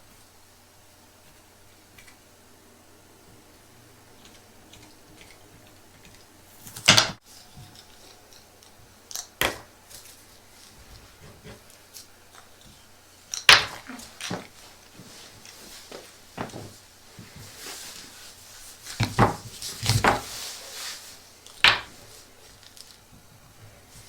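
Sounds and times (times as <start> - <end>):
small hard objects clicking: 7.8 - 10.7, 13.3 - 14.3
soft rustling: 13.9 - 24.0.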